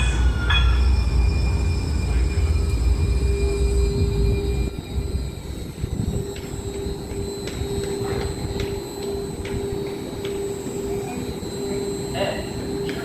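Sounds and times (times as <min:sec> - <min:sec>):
low rumble: 0:00.0 - 0:08.6
electrical hum: 0:00.0 - 0:13.0.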